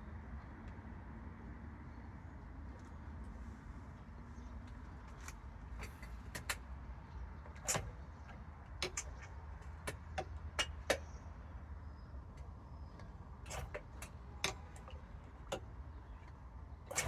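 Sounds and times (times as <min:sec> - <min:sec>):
clicks and knocks of handling tools: 0:07.4 - 0:11.2, 0:12.4 - 0:17.0.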